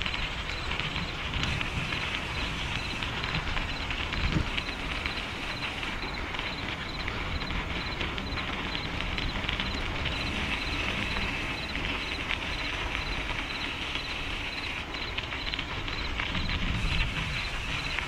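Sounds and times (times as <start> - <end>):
wind on microphone: 0.8 - 6.2, 16.3 - 18.0.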